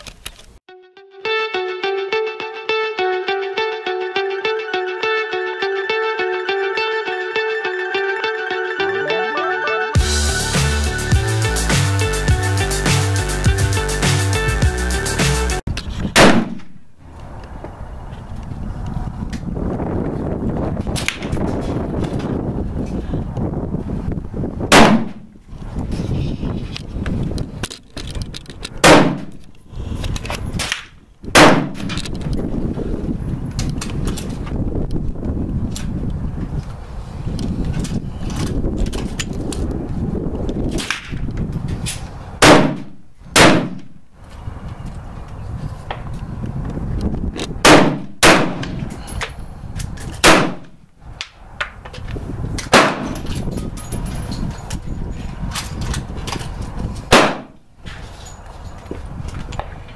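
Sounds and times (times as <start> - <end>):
pistol shots: 31.4 - 31.8, 42.4 - 43.8, 47.6 - 48.6, 50.2 - 50.6, 57.1 - 57.5.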